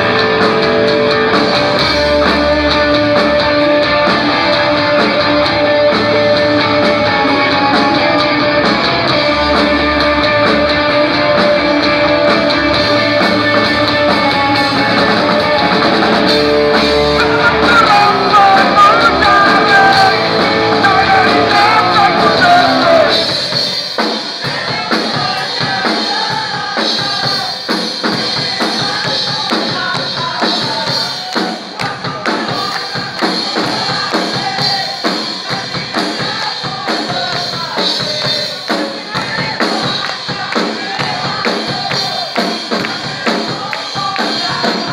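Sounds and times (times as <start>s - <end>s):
electric guitars: 0.0s - 24.9s
drum kit: 0.0s - 44.9s
person singing: 1.3s - 44.9s.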